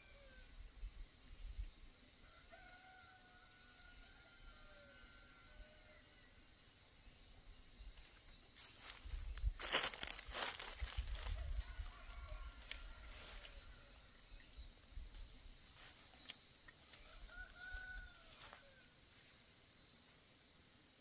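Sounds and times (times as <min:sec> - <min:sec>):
high insect drone: 0:00.0 - 0:21.0
rooster crowing: 0:02.2 - 0:06.2, 0:09.9 - 0:14.1, 0:16.9 - 0:18.9.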